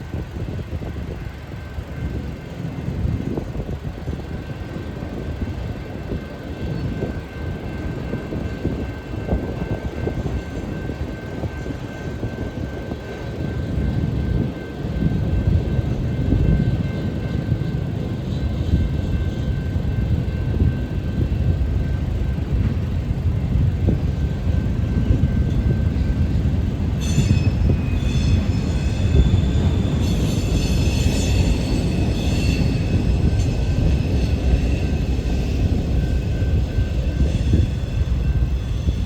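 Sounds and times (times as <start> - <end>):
train wheels rumbling on rail: 0.0 - 39.0
wheel squeal: 27.0 - 35.7.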